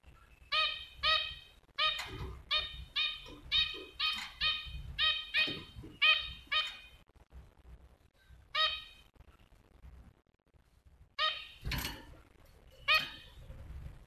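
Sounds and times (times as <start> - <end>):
small bird calling: 0.3 - 7.0, 12.7 - 13.4.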